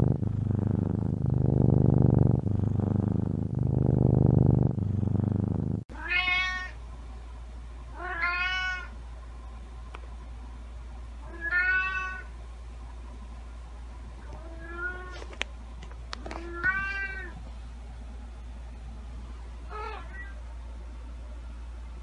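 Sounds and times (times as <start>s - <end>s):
cat purring loudly: 0.0s - 5.8s
cat meowing: 6.0s - 6.8s, 8.0s - 8.9s, 11.3s - 12.3s, 19.7s - 20.4s.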